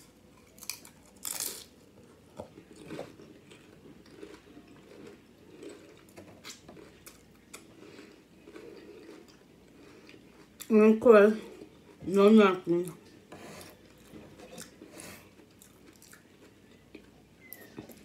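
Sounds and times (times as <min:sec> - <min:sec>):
chewing with crisp crunches: 0:00.0 - 0:10.8, 0:12.7 - 0:18.0
crunching bite into chips: 0:00.5 - 0:01.7.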